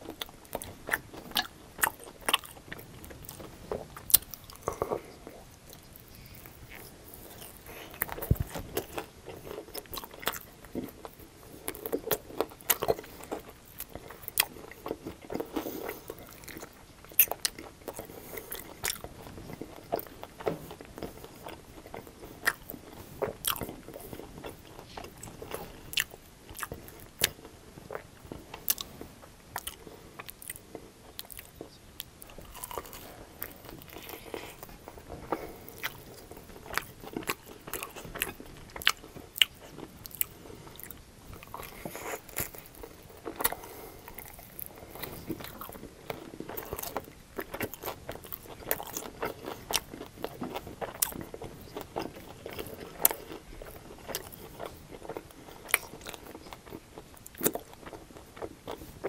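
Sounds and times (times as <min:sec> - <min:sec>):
chewing crunchy chicken wings: 0:00.0 - 0:59.0.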